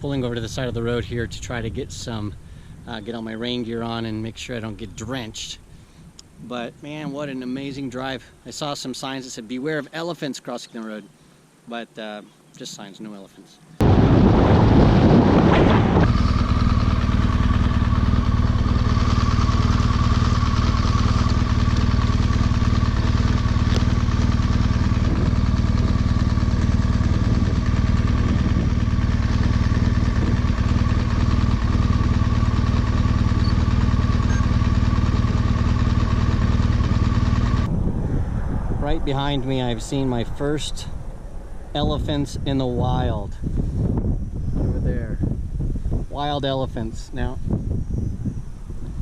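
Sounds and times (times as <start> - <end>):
motorcycle engine cruising: 13.8 - 46.0.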